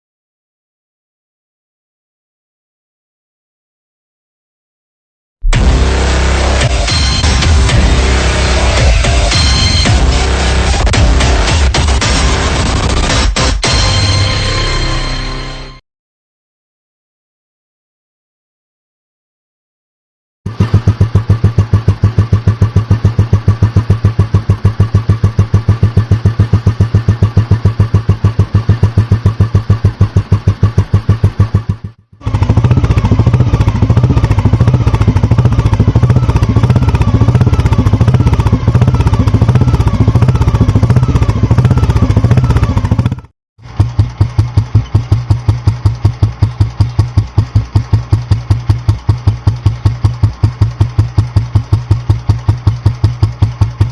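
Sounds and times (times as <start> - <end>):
motorcycle engine idling: 20.5 - 53.9.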